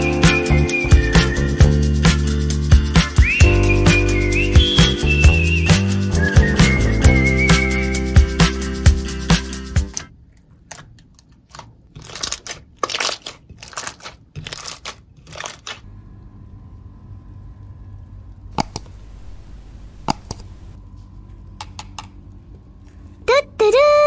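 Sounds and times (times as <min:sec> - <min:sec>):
slime squelching: 0:09.9 - 0:15.8
faint steady hum: 0:15.8 - 0:24.0
sharp clicks: 0:18.6 - 0:20.8.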